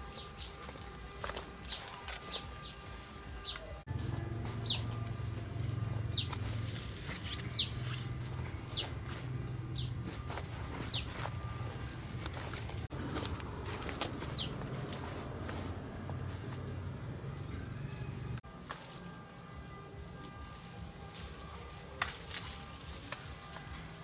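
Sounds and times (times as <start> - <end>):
low hum: 0.0 - 23.0
insect drone: 0.0 - 24.0
bird falling chirp: 7.3 - 9.0, 14.0 - 14.7.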